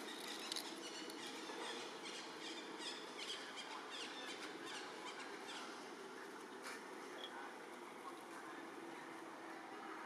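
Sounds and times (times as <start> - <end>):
small birds chirping: 0.0 - 5.7
outdoor background hum: 0.0 - 10.0.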